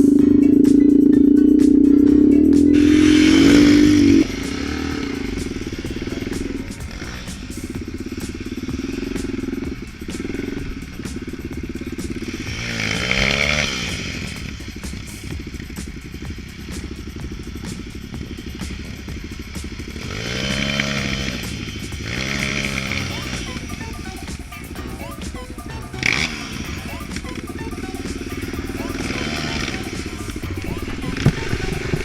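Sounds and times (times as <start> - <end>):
loud steady hum: 0.0 - 32.0
small vehicle engine revving: 0.0 - 32.0.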